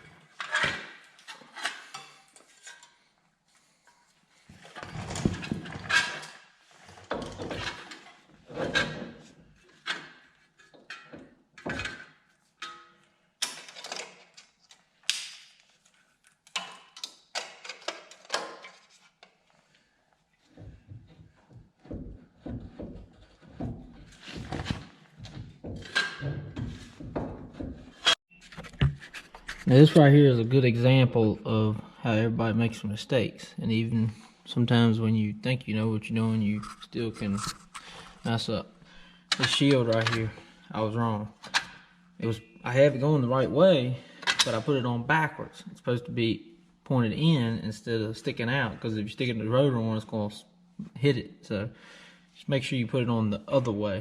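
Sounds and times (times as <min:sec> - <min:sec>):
metal parts clanking and scraping: 0:00.3 - 0:03.0, 0:04.6 - 0:14.6, 0:25.8 - 0:27.1, 0:36.6 - 0:40.6.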